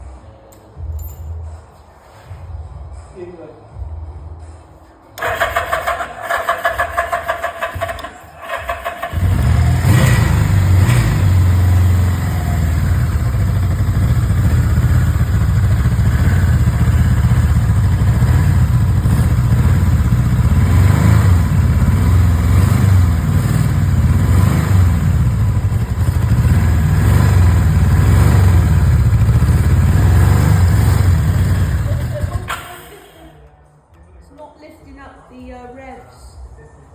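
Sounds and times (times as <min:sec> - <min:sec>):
motorcycle starter cranking: 0:05.2 - 0:20.2, 0:31.0 - 0:33.2
motorcycle engine running: 0:05.2 - 0:33.0.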